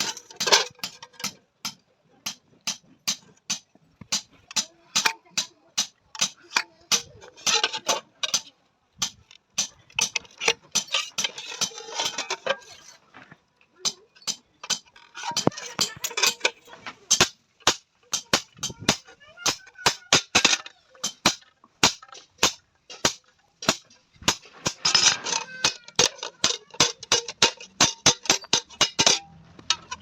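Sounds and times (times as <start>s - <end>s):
hammer striking metal: 17.1s - 25.0s, 25.6s - 29.3s.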